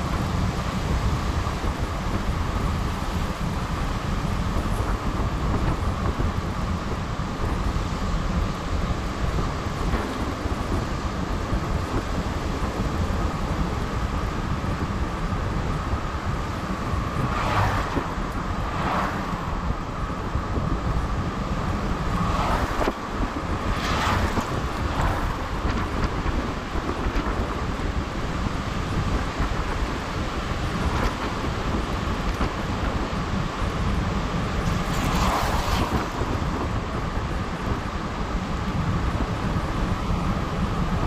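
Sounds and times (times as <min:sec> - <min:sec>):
wind buffeting microphone: 0:00.0 - 0:41.0
heavy surf: 0:09.3 - 0:39.4.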